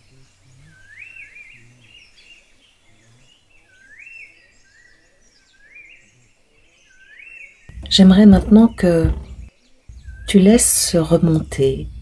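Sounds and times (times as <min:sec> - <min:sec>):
soft background hiss: 0:07.7 - 0:12.0.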